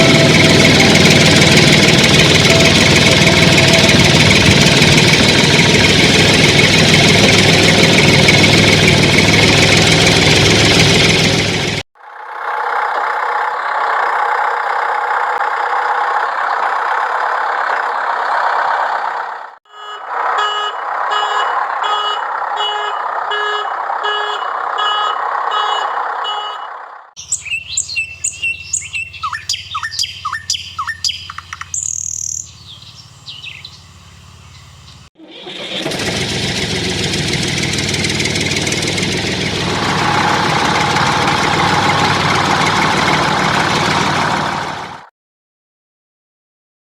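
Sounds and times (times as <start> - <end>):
pulsed tones: 0.0 - 11.2, 38.3 - 44.5
birds chirping: 27.2 - 35.1.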